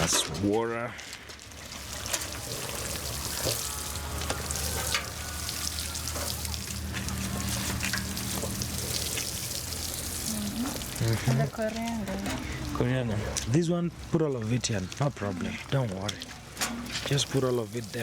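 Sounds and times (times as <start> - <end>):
water sprinkling from watering can: 1.3 - 13.0, 15.7 - 18.0.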